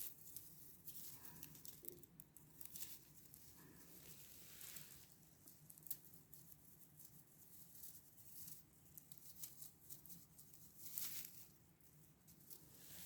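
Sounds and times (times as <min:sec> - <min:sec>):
faint rustling: 0:00.0 - 0:13.0.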